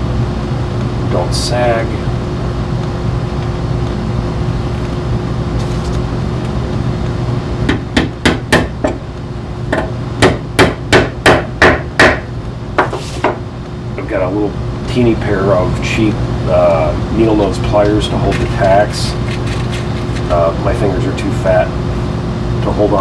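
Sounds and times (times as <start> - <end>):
steady background hum: 0.0 - 23.0
hammer striking tacks: 7.7 - 13.4.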